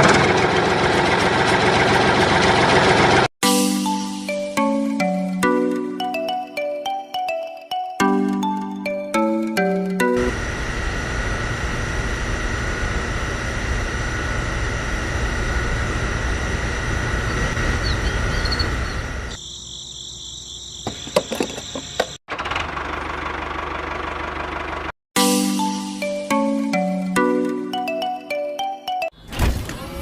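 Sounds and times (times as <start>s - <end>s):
motor running: 10.2s - 19.4s.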